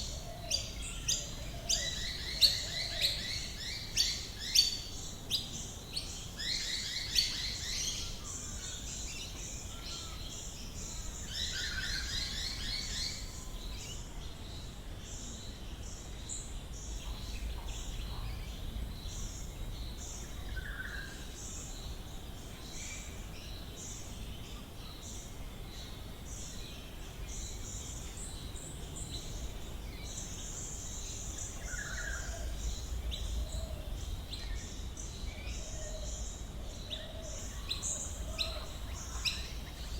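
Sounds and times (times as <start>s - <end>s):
bird chorus chirping and trilling: 35.5s - 39.9s.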